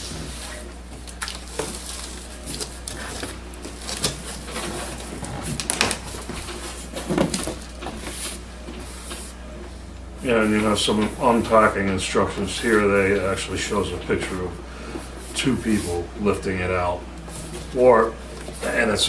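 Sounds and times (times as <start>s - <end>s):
cardboard box rustling and scraping: 1.5s - 9.3s.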